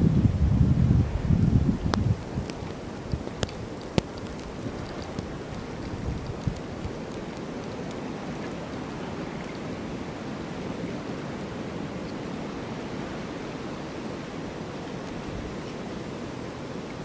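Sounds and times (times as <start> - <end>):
snowstorm wind rushing: 0.0 - 7.0.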